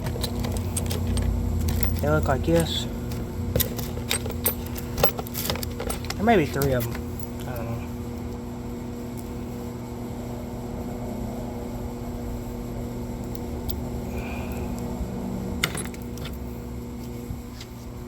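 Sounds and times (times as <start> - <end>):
metallic clinks of bolts and tools: 0.0 - 7.5, 15.6 - 16.4
background hum: 0.0 - 18.0.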